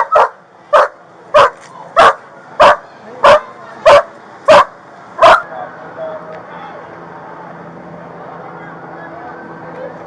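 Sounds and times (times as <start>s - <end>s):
dog barking: 0.0s - 5.5s.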